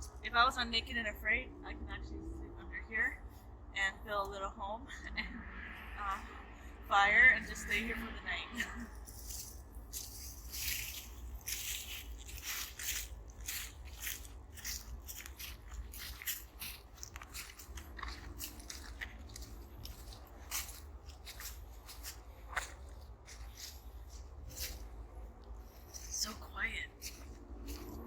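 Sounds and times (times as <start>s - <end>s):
footsteps crunching on dry leaves: 8.7s - 28.0s.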